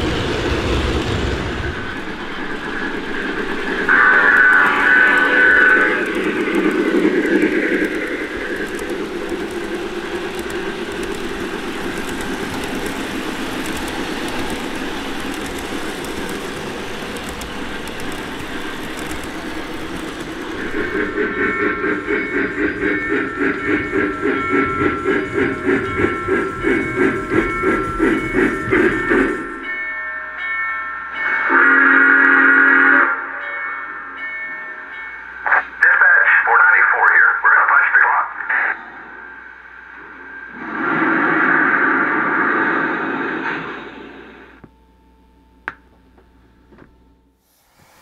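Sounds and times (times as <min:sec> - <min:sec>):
pulsing engine sound effect: 0:00.0 - 0:29.7
model train rolling on track: 0:00.0 - 0:44.8.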